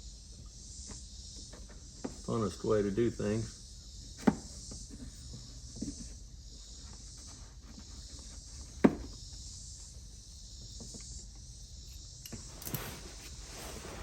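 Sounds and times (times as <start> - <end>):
steady hiss: 8.4 - 14.0.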